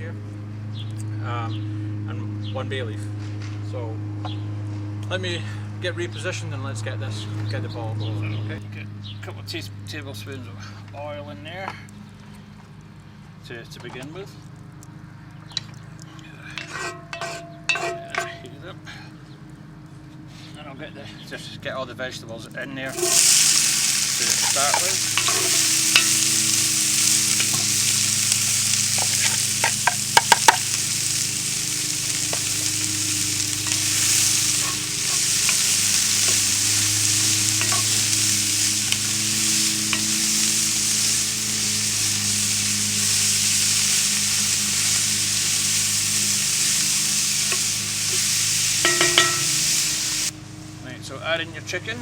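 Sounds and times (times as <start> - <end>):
vegetables sizzling in oil: 22.9 - 50.4
sharp clicks against pot: 24.4 - 31.4.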